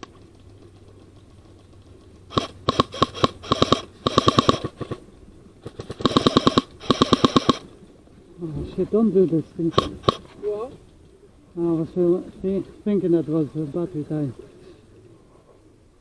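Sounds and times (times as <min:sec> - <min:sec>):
airsoft gun firing bursts: 0:00.0 - 0:05.0, 0:05.6 - 0:07.7, 0:09.7 - 0:10.3
gearbox whine: 0:00.0 - 0:11.2.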